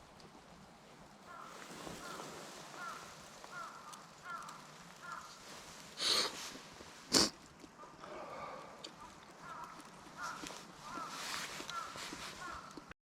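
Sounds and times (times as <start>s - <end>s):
crow cawing: 1.3s - 6.2s, 7.8s - 12.9s
short rustle: 1.3s - 7.3s, 10.2s - 12.7s.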